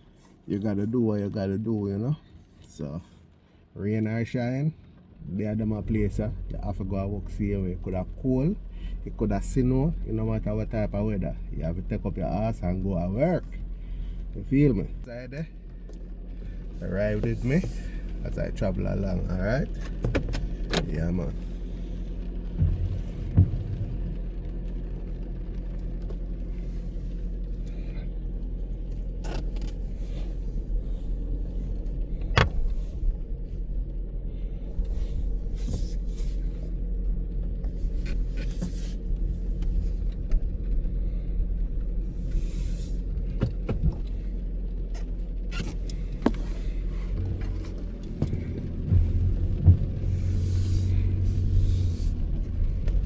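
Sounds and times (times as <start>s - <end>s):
car engine and road noise: 0.0s - 53.0s
brief hissing: 50.1s - 52.2s.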